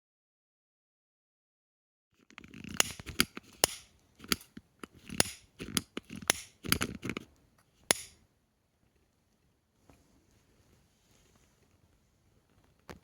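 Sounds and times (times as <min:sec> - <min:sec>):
soft rustling: 0:08.9 - 0:13.0.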